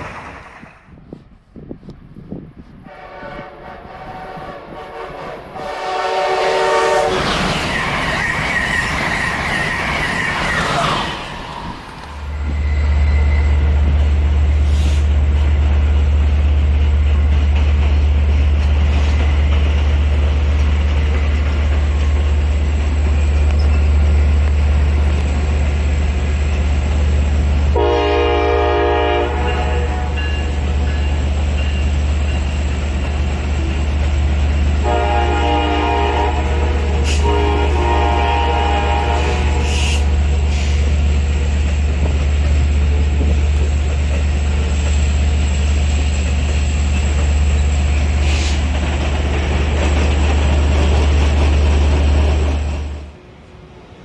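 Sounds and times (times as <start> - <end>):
train passing with rushing noise: 0.0 - 54.0
train horn blasts: 2.8 - 7.3, 27.7 - 30.6, 34.8 - 40.2.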